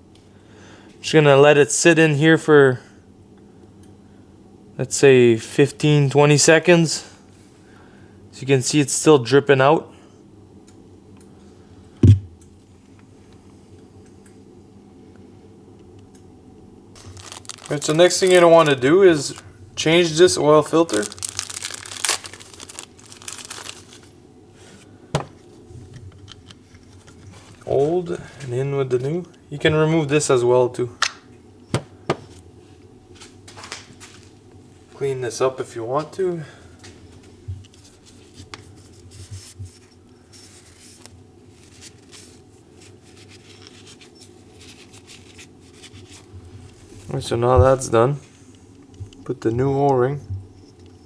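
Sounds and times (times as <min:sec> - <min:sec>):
material crinkling and rustling: 0:17.0 - 0:24.2, 0:37.7 - 0:47.2.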